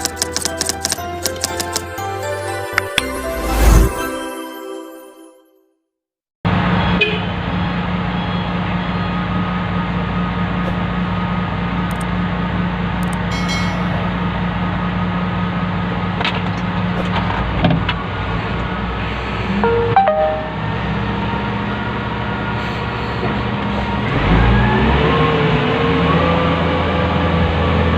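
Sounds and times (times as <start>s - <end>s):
diesel engine running: 20.6s - 25.8s.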